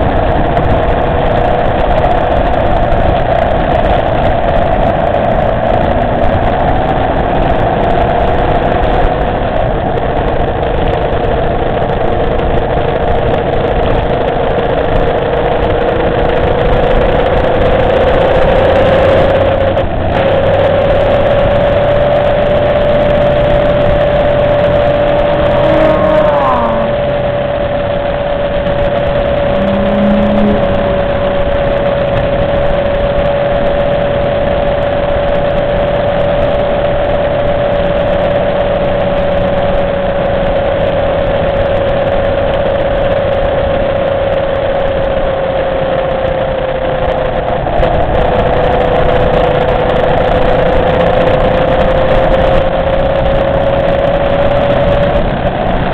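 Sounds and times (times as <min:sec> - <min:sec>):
heavy wind noise: 0:00.0 - 0:55.9
motorcycle engine cruising: 0:00.0 - 0:55.9
passing car engine: 0:15.9 - 0:34.7.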